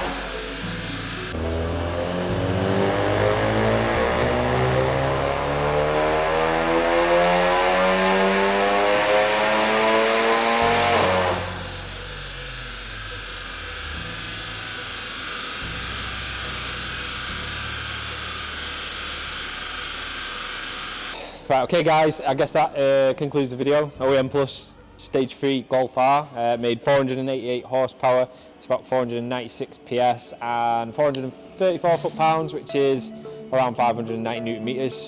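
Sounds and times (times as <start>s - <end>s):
car engine full-throttle pull: 0.0s - 21.2s.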